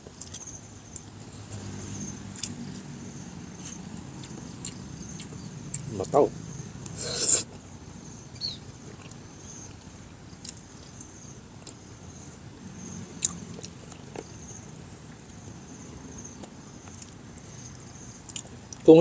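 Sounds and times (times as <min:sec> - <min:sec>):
man chewing: 0:00.0 - 0:01.1, 0:02.4 - 0:02.9, 0:03.5 - 0:05.9, 0:06.8 - 0:07.6, 0:08.8 - 0:11.8, 0:18.2 - 0:18.8.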